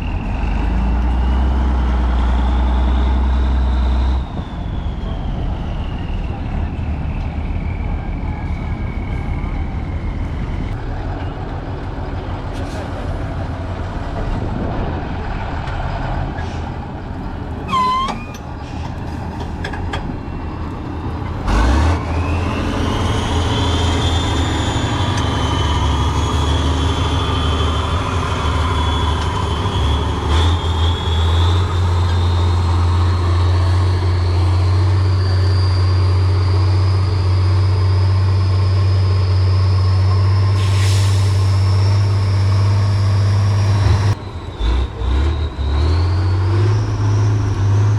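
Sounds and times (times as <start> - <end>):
diesel truck engine running: 0.0 - 47.9
brief high squeal: 17.7 - 18.9, 34.5 - 42.4.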